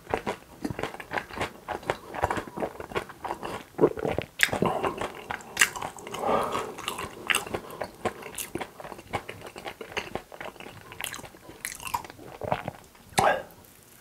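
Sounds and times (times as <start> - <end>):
person chewing crunchy food: 0.0 - 13.0.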